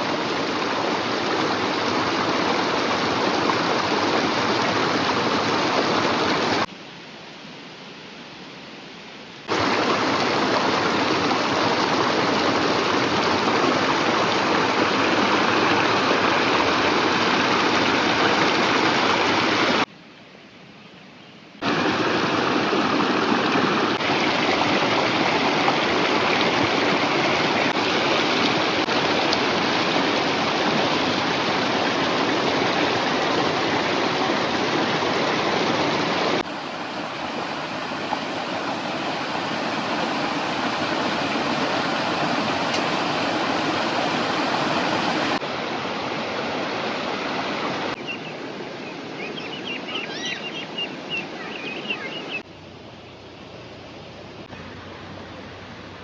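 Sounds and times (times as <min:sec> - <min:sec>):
river rushing: 0:00.0 - 0:06.8, 0:09.4 - 0:19.9, 0:21.6 - 0:56.0.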